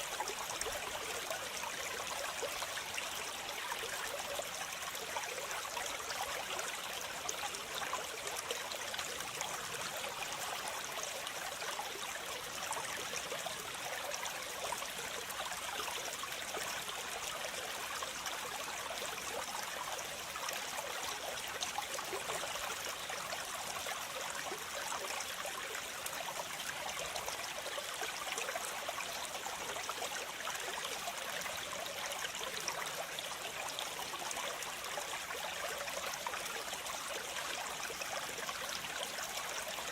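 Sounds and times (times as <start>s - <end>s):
small waterfall splashing: 0.0s - 4.9s, 16.2s - 39.9s.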